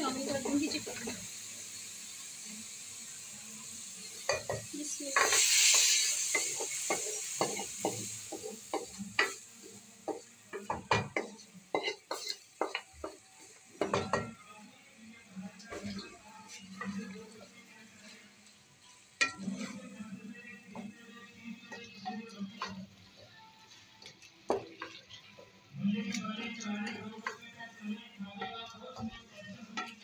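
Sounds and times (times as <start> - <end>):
food sizzling in hot oil: 0.0 - 30.0
spoon scraping metal pans: 10.6 - 13.1, 18.9 - 22.8.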